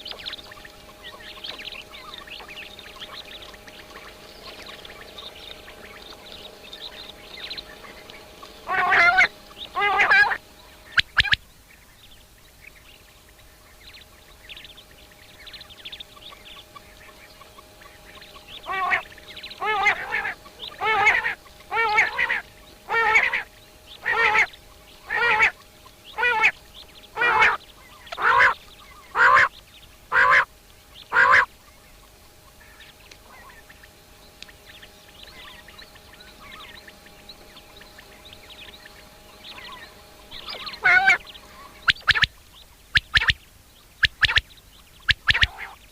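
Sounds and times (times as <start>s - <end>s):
bird calling loudly: 0.0s - 11.6s, 12.7s - 45.9s
faint steady hum: 0.0s - 45.9s.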